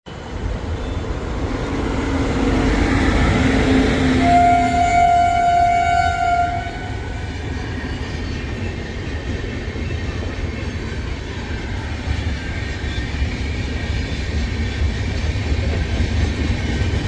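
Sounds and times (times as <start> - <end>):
train rumble and rail noise: 0.1 - 17.0
train horn: 2.8 - 7.4.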